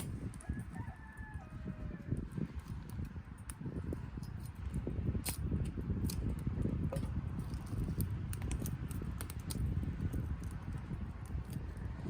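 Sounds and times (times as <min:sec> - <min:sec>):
fire crackling and popping: 0:00.0 - 0:12.0
low rumble of flame: 0:00.0 - 0:12.0.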